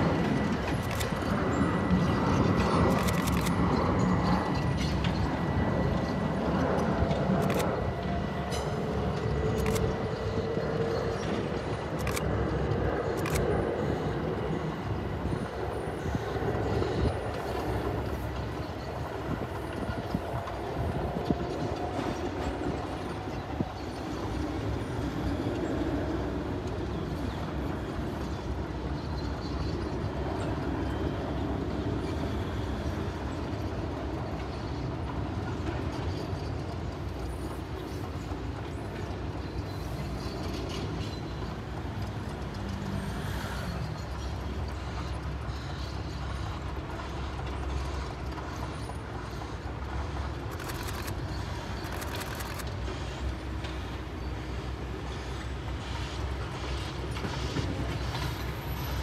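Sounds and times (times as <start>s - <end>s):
train wheels rumbling on rail: 0.0s - 59.0s
sharp clicks: 0.7s - 1.3s, 2.9s - 3.6s, 7.3s - 7.9s, 9.6s - 10.0s, 13.1s - 13.5s, 50.4s - 52.9s.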